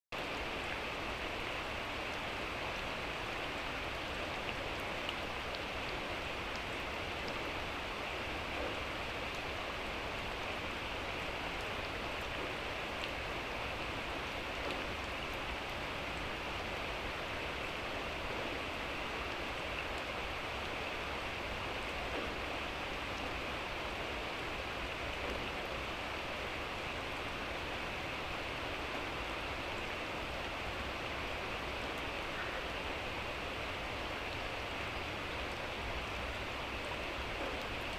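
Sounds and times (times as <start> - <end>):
light rain falling: 0.1 - 37.9
faint drip ticks: 4.4 - 5.9, 6.5 - 7.6, 8.5 - 9.7, 11.5 - 16.2, 34.2 - 37.9.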